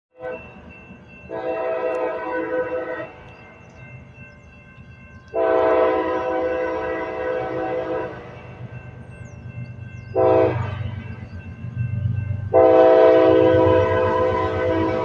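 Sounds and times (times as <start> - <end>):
low rumble of passing train: 0.2 - 15.0
locomotive air horn blasts: 1.3 - 3.1, 5.4 - 8.3, 10.2 - 11.0, 12.5 - 15.0.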